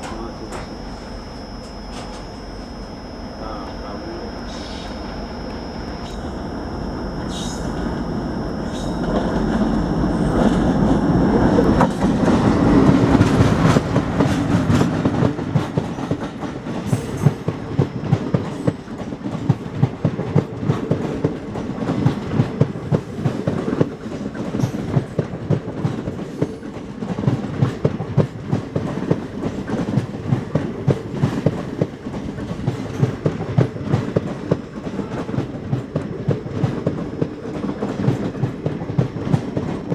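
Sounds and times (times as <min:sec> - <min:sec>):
diesel locomotive passing: 0:00.0 - 0:24.5.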